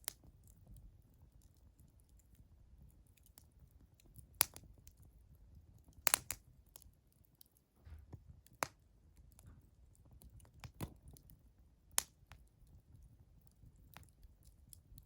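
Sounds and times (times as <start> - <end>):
firewood crackling: 0.0 - 15.0
firewood popping: 4.0 - 5.0, 5.8 - 6.8, 12.0 - 12.5.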